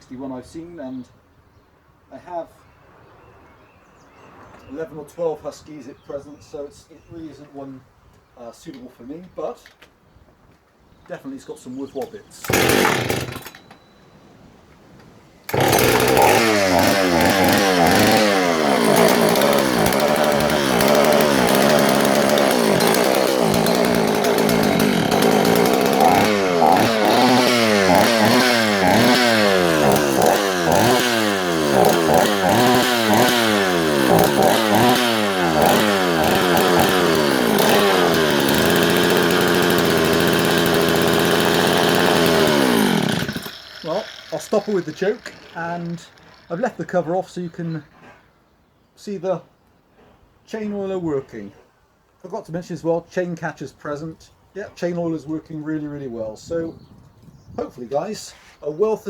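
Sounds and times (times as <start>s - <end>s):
chainsaw revving: 12.3s - 13.6s, 15.5s - 46.8s.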